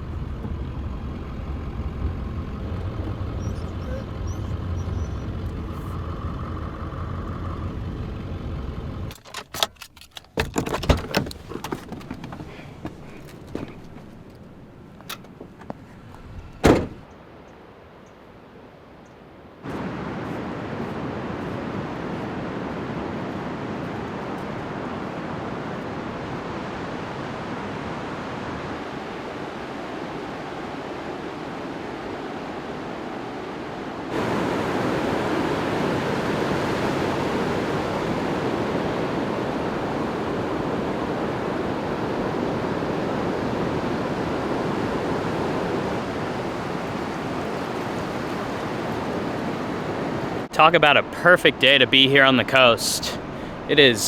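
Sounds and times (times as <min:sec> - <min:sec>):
ocean waves breaking: 0:11.3 - 0:54.0.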